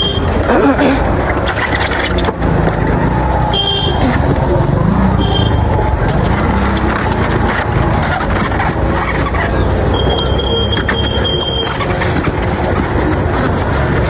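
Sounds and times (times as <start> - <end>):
busy street traffic: 0.0 - 14.0.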